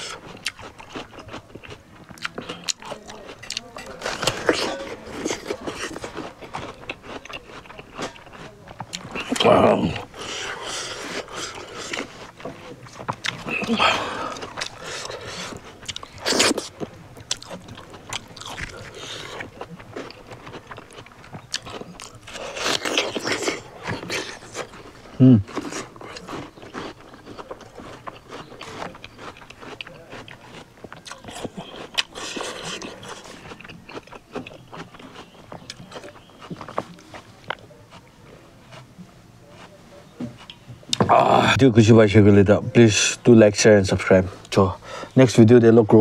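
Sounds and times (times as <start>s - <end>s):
person chewing with crunching bites: 0.0s - 41.6s
person grunting: 25.2s - 25.5s.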